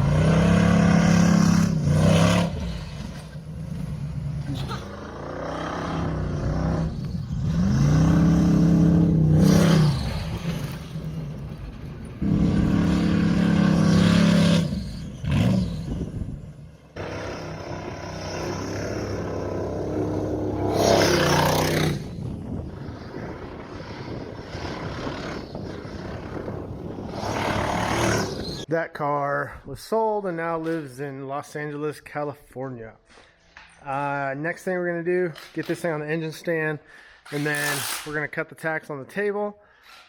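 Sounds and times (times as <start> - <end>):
race car engine revving: 0.0 - 16.4, 17.0 - 22.2.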